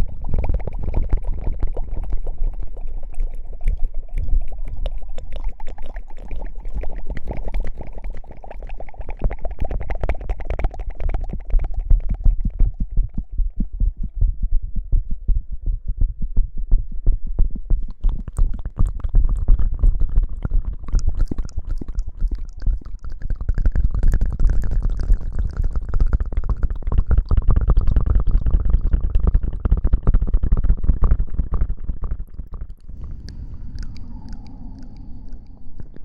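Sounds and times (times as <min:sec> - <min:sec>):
heavy low rumble: 0:32.3 - 0:36.0.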